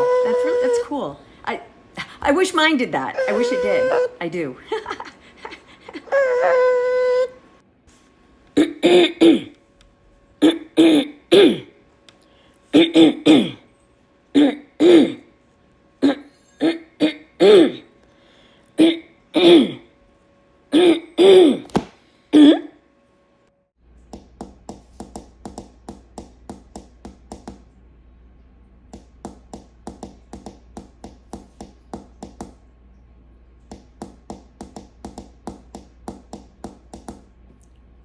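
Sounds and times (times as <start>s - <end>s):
low steady hum: 0.0s - 38.0s
person coughing: 8.6s - 9.6s, 10.4s - 11.8s, 12.7s - 13.7s, 14.3s - 15.3s, 16.0s - 17.9s, 18.8s - 19.9s, 20.7s - 21.7s, 22.3s - 22.8s.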